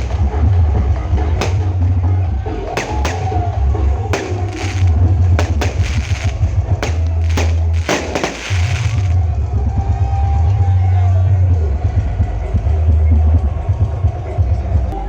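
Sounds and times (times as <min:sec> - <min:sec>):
loud music with deep bass: 0:00.0 - 0:15.0
sharp percussion hits: 0:01.4 - 0:01.8, 0:02.8 - 0:03.4, 0:04.1 - 0:09.1.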